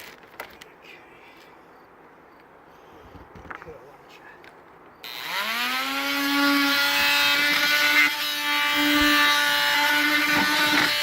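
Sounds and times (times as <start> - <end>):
electric drill spinning: 5.1 - 11.0.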